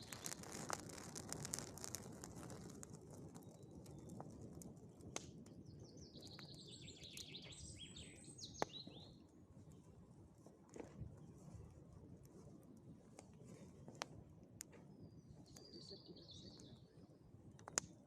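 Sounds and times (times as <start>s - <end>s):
campfire crackling and popping: 0.0s - 18.0s
songbird twittering: 5.7s - 9.1s, 15.0s - 17.0s.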